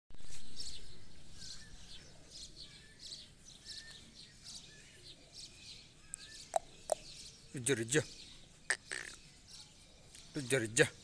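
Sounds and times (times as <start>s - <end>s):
birds chirping: 0.2s - 11.0s
faint outdoor hiss: 0.2s - 11.0s
whistled bird notes: 0.3s - 7.4s.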